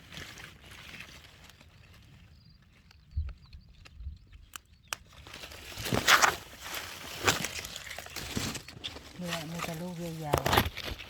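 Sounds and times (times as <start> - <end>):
leaves rustling and crinkling: 0.0 - 11.0.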